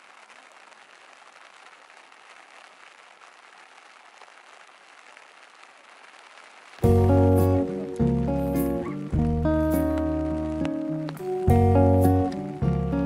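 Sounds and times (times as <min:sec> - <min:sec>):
light rain falling: 0:00.0 - 0:13.0.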